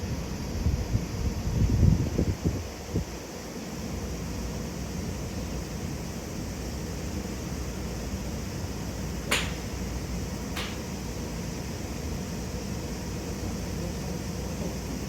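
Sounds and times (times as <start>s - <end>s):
golf clubs striking balls: 9.2s - 9.9s, 10.5s - 11.0s.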